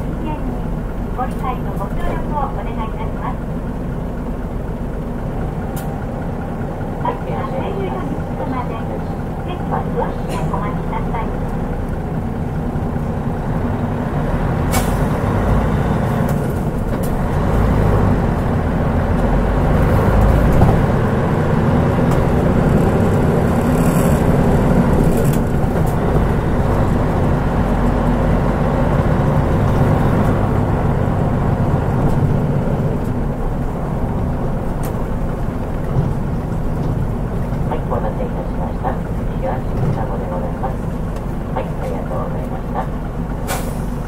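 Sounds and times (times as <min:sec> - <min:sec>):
bus diesel engine and road rumble: 0:00.0 - 0:44.0.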